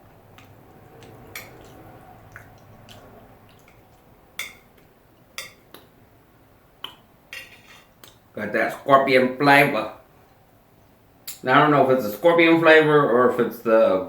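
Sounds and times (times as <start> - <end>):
wet chewing: 0.0 - 6.0
utensil tapping dish: 0.4 - 5.9.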